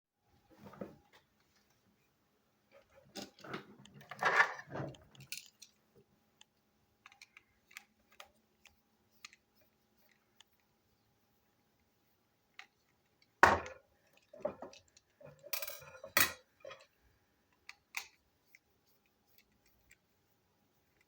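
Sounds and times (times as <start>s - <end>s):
plastic toy pieces clicking: 7.0s - 8.3s.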